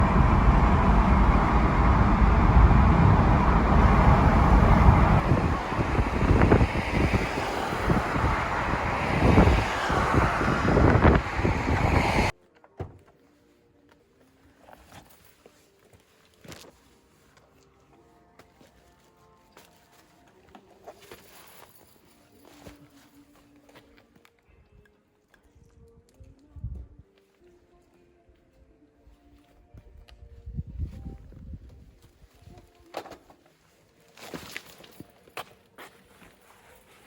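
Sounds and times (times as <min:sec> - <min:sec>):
moving vehicle rumble: 0:00.0 - 0:12.3.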